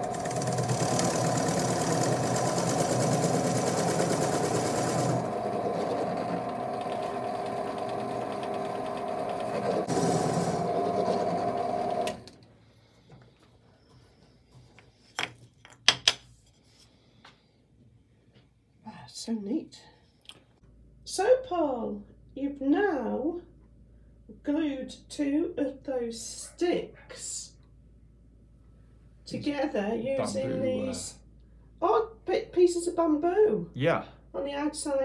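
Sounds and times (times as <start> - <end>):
pillar drill boring into wood: 0.0 - 12.3.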